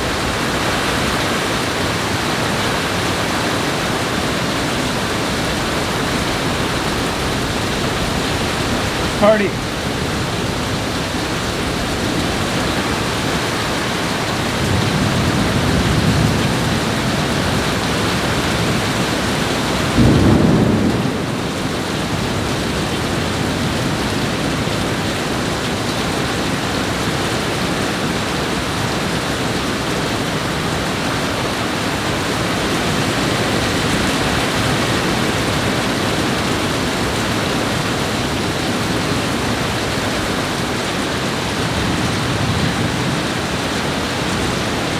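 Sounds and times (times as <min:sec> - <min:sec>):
heavy rain pouring: 0:00.0 - 0:44.9
thunder rumbling: 0:05.2 - 0:22.4.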